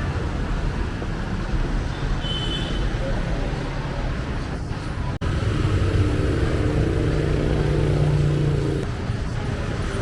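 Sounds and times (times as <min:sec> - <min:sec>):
street traffic: 0:00.0 - 0:10.0
vehicle engine humming: 0:03.8 - 0:10.0.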